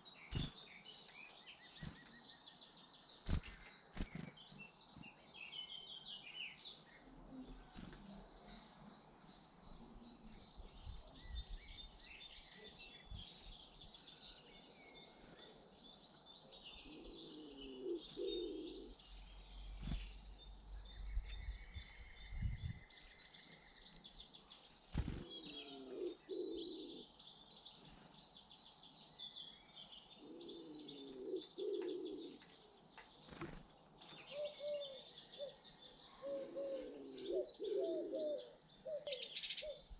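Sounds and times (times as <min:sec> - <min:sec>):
small birds chirping: 0:00.0 - 0:39.9
pigeon cooing: 0:17.0 - 0:18.9, 0:25.3 - 0:27.0, 0:30.2 - 0:32.4, 0:36.2 - 0:39.8.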